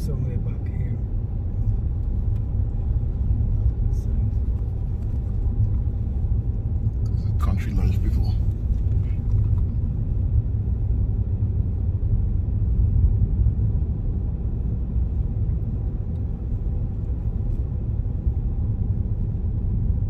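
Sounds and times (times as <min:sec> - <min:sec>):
car interior road rumble: 0:00.0 - 0:20.0.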